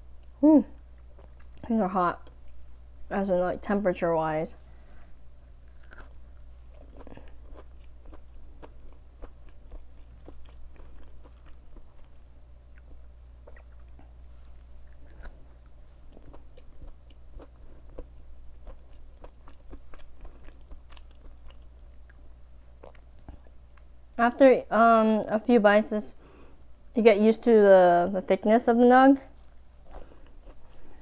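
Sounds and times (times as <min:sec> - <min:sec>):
crunchy chewing of fried food: 0:04.6 - 0:24.0, 0:29.3 - 0:31.0.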